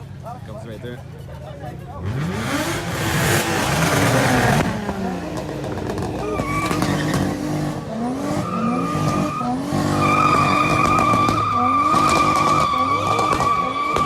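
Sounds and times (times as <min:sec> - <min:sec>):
car engine revving: 0:01.9 - 0:14.0
car tires squealing: 0:05.9 - 0:14.0.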